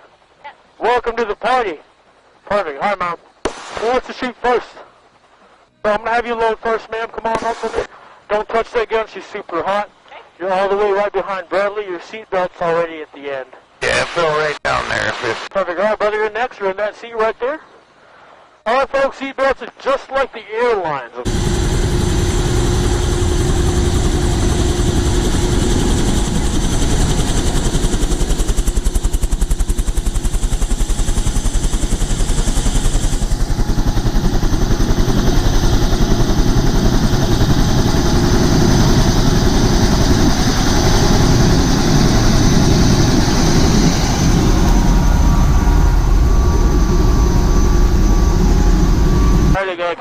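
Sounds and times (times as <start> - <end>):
helicopter turbine and rotor noise: 21.2 - 49.6.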